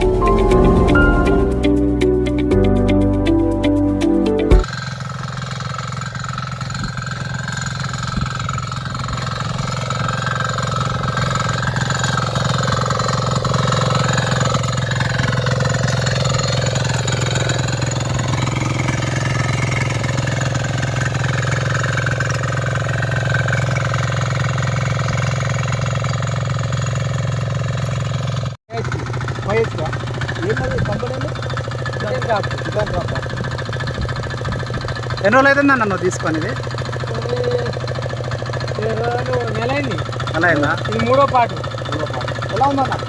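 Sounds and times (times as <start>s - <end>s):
diesel engine running: 1.5s - 43.0s.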